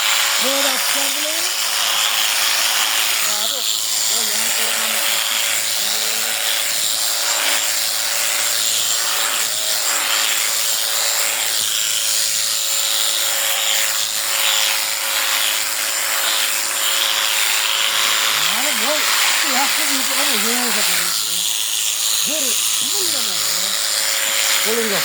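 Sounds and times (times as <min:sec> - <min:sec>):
cutter rasping through fleece: 0:00.0 - 0:25.0
electric shears motor whine: 0:00.0 - 0:25.0.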